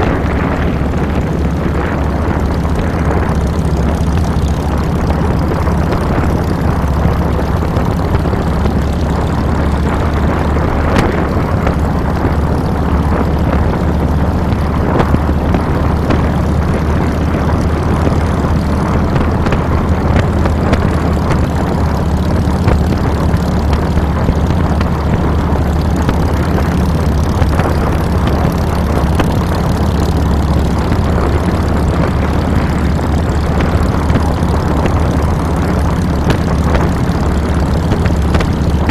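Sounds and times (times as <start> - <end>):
motorcycle exhaust note: 0.0 - 38.9
wind on microphone: 0.0 - 38.9.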